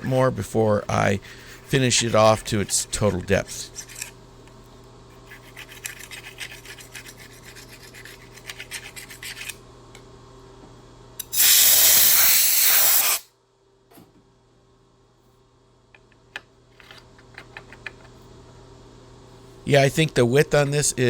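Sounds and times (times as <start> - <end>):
low machine hum: 0.0 - 11.4, 13.3 - 21.0
loud even hiss: 11.3 - 13.2.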